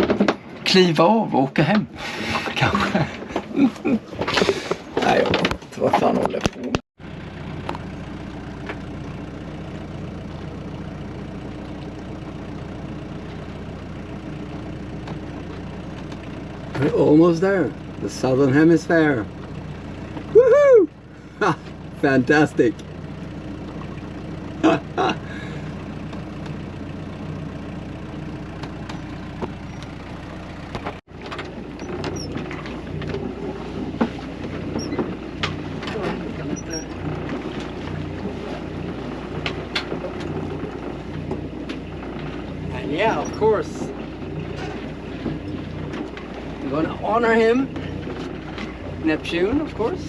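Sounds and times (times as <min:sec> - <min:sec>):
boat engine humming: 0:00.0 - 0:50.0.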